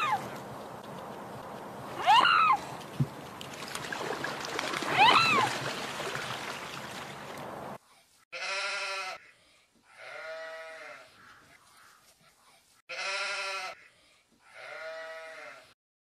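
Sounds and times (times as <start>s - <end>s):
animal call: 2.0s - 2.7s.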